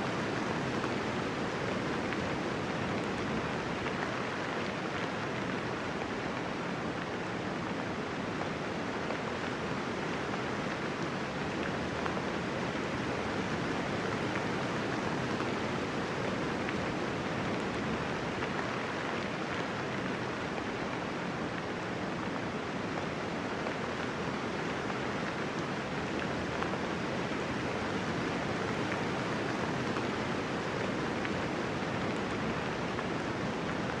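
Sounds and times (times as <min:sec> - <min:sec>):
light rain falling: 0:00.0 - 0:34.0.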